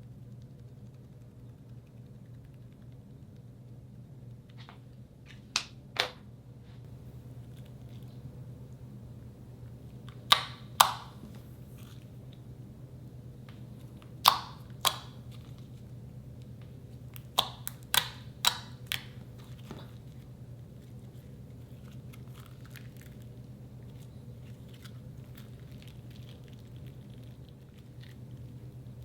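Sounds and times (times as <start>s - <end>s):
steady low hum: 0.0s - 29.0s
slime squishing and popping: 14.2s - 15.6s, 17.1s - 20.1s.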